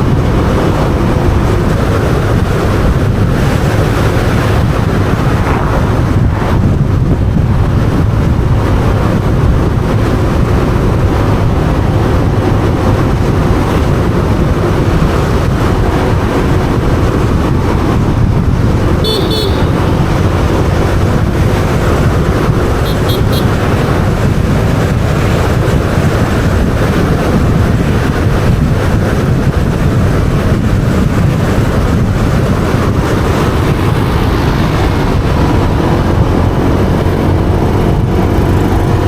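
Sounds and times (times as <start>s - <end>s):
motorbike engine: 0.0s - 39.0s
wind rush on microphone: 0.0s - 39.0s
short high beeping: 19.0s - 19.9s.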